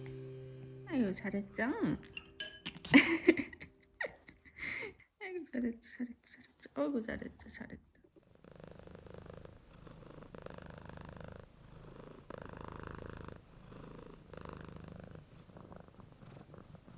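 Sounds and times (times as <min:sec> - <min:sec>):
cat purring: 0:06.7 - 0:16.9.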